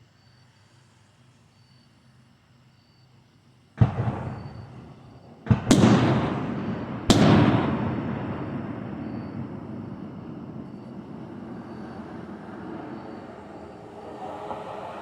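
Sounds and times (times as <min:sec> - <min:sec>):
firework shells bursting: 0:03.8 - 0:14.4.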